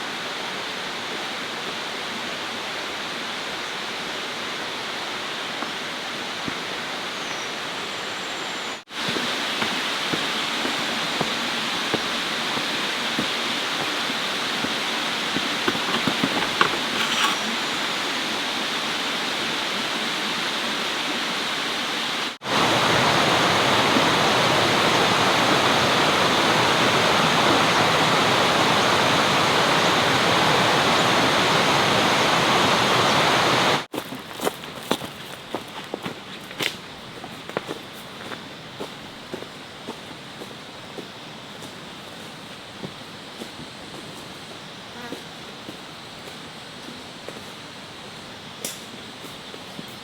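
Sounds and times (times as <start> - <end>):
flowing water rushing: 0.0 - 33.9.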